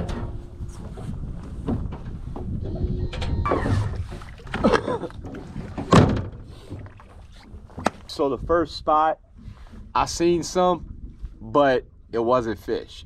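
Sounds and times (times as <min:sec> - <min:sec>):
wind rumbling on microphone: 0:00.0 - 0:13.0
short gliding squeaks: 0:02.6 - 0:04.2.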